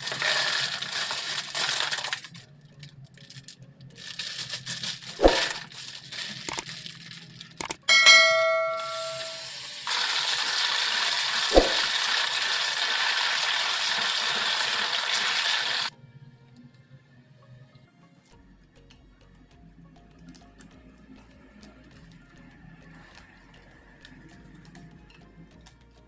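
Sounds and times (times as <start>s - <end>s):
metal cookware knocks: 7.9s - 9.4s
metal pan ringing: 7.9s - 9.5s.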